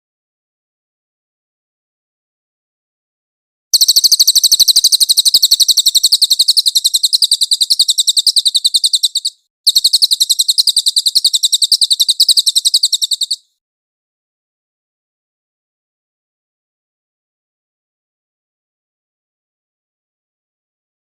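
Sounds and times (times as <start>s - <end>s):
songbird trilling: 3.8s - 13.4s.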